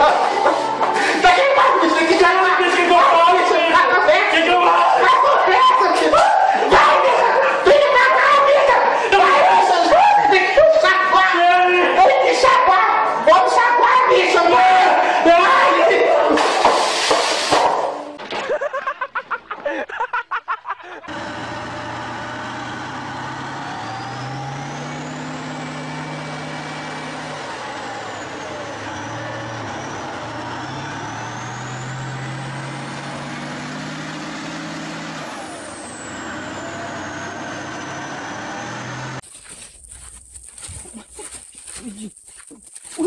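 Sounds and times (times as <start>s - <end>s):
tank engine running hard: 0.0s - 5.4s, 21.1s - 39.2s.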